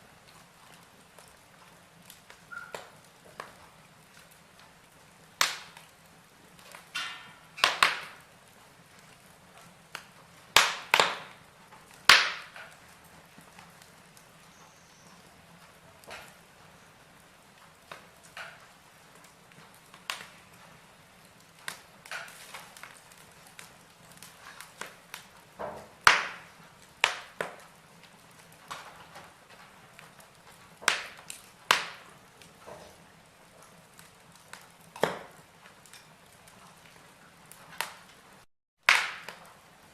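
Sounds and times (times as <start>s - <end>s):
faint steady hiss: 0.0s - 39.9s
logs crackling and popping: 0.0s - 39.9s.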